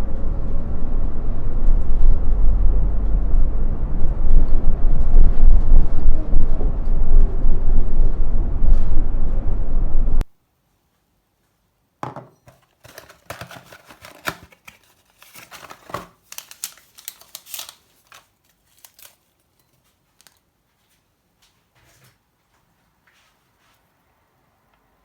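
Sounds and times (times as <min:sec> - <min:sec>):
paper snipping and crinkling: 0:12.4 - 0:20.5.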